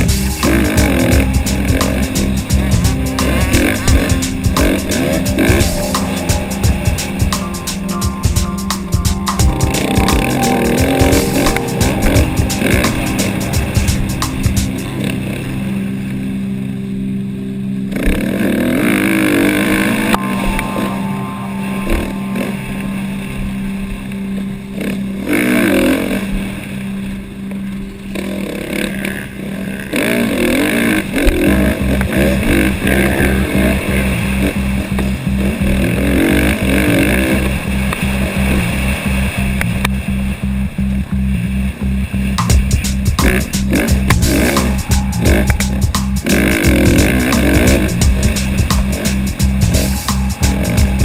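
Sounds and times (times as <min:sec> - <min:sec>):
music with bass and steady beat: 0:00.0 - 0:15.5, 0:31.4 - 0:51.0.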